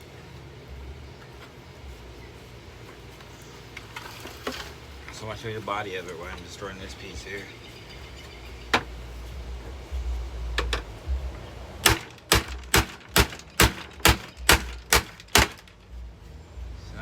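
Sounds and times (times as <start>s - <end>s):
hammer striking vacuum cleaner: 11.8s - 15.6s.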